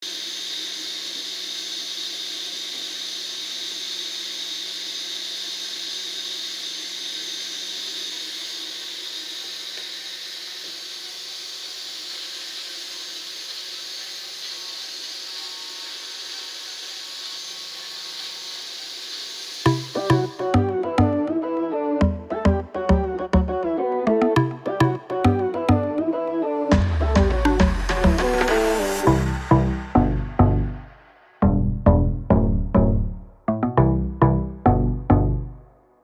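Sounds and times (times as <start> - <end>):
small motor fan whining: 0.0 - 20.7.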